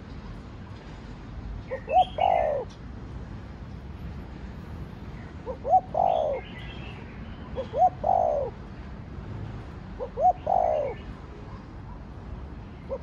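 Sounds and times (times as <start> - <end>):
dove cooing: 1.7 - 2.7, 5.4 - 6.5, 7.6 - 8.6, 10.0 - 11.1.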